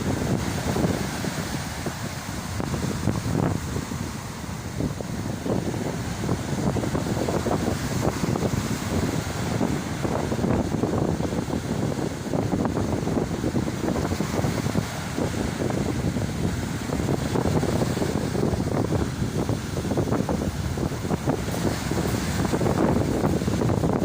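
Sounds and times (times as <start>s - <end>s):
gusty wind buffeting microphone: 0.0s - 24.0s
sea surf: 0.0s - 24.0s.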